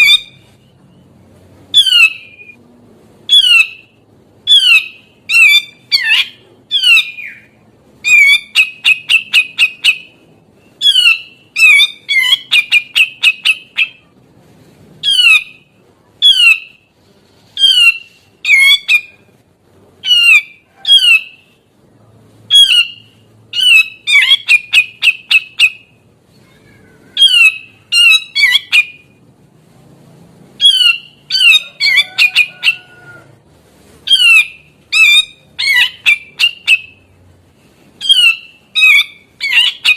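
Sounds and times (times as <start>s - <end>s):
bulbul singing harsh calls: 1.7s - 2.6s, 3.3s - 14.0s, 17.6s - 19.2s, 22.5s - 26.0s, 27.2s - 29.2s, 30.6s - 32.5s, 34.1s - 37.1s, 38.0s - 39.9s.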